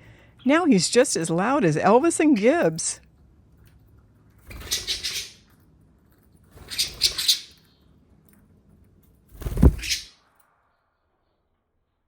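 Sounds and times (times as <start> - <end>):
budgerigar chattering and chirping: 4.7 - 5.4.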